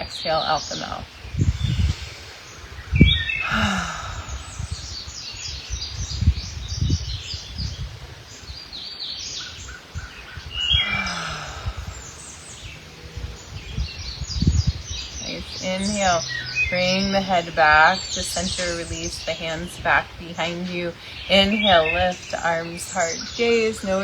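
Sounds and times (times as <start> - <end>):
songbirds chirping: 0.0 - 24.0
wind rumble on microphone: 0.0 - 24.0
sighing breaths: 1.4 - 5.2, 10.6 - 17.2, 20.9 - 21.3.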